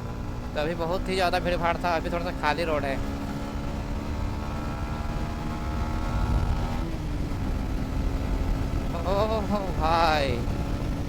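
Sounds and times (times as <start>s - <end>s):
motorcycle engine at speed: 0.0s - 11.0s
wind rumble on microphone: 4.6s - 11.0s.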